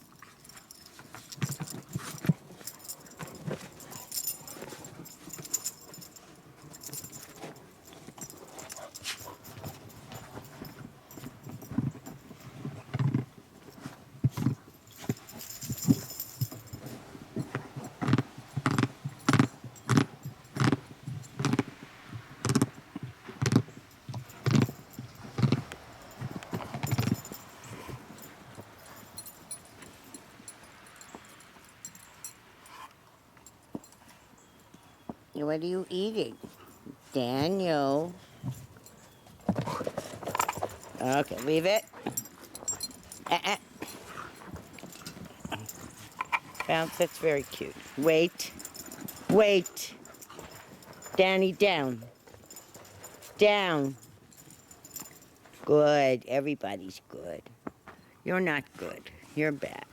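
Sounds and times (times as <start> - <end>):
dog chewing and crunching: 0.0 - 31.4, 38.1 - 55.6
collar tags jingling: 0.0 - 59.9.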